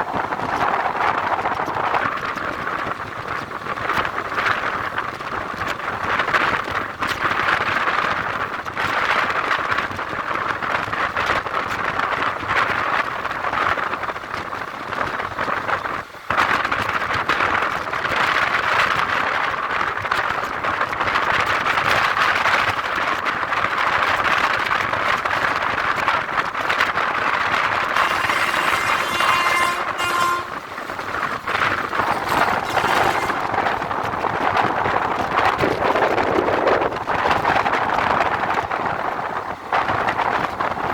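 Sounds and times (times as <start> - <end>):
train running on track: 0.0 - 40.9.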